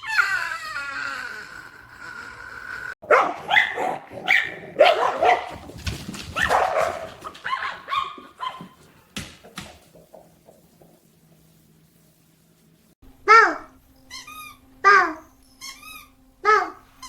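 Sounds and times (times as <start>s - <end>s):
dog barking: 3.0s - 5.7s, 6.3s - 8.9s, 13.3s - 13.7s, 14.8s - 15.2s, 16.4s - 16.8s.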